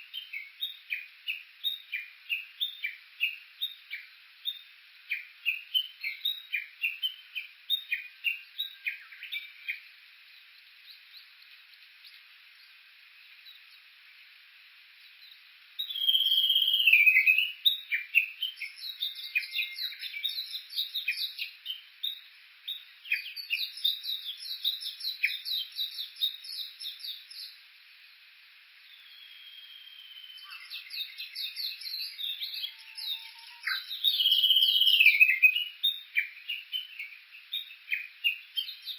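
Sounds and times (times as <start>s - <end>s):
bush warbler calling: 28.9s - 38.8s.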